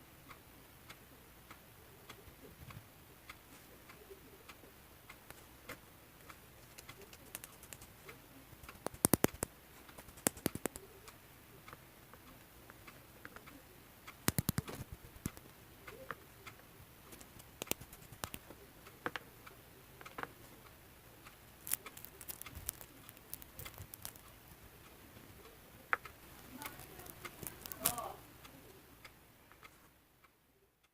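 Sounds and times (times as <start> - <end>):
crunchy slime being squished: 21.6 - 24.2.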